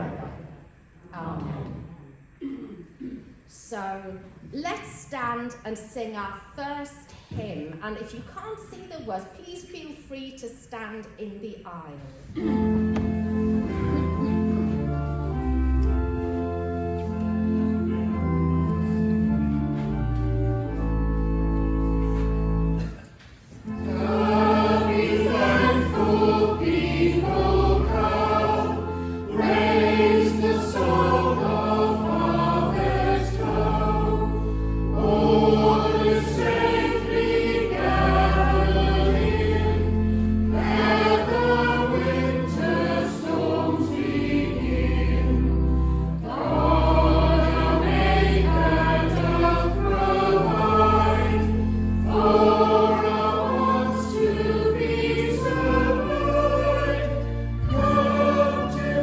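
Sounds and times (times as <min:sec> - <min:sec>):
choir and congregation singing hymn: 0:12.4 - 0:16.0, 0:23.6 - 0:59.0
church organ chords: 0:12.4 - 0:23.0, 0:23.6 - 0:59.0.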